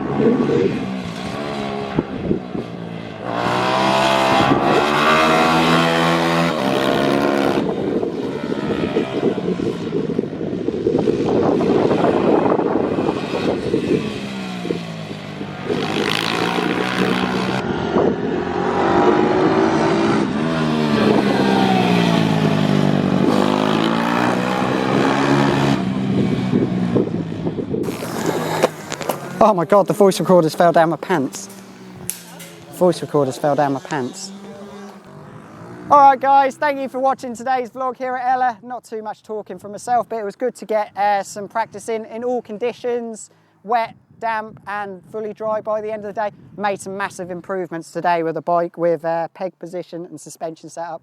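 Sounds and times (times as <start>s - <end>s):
pit bike engine revving: 0.0s - 37.2s.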